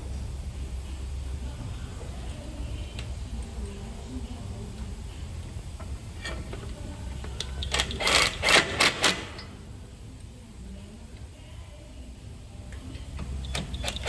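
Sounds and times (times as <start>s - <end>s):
low hum: 0.0s - 8.5s
loud mechanical clatter: 5.7s - 9.6s, 13.4s - 14.0s.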